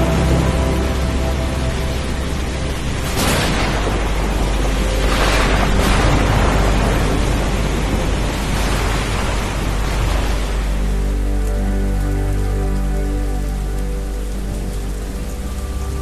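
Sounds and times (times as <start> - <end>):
thunder rumbling: 0.0 - 11.4
heavy rain: 0.0 - 16.0.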